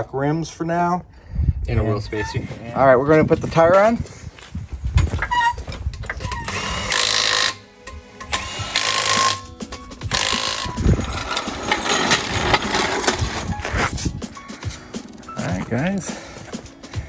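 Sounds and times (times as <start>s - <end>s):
impact wrench rattling: 8.3s - 14.8s.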